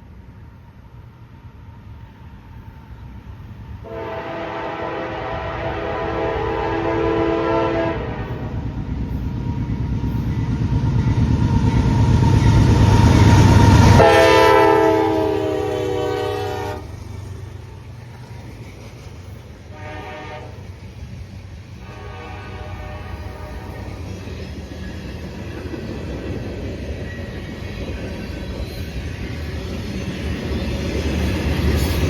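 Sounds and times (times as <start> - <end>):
diesel locomotives passing: 0.0 - 32.0
train cars rolling by: 0.0 - 32.0
train horn blasts: 3.8 - 8.6, 13.8 - 16.9, 19.7 - 20.8, 21.8 - 24.0.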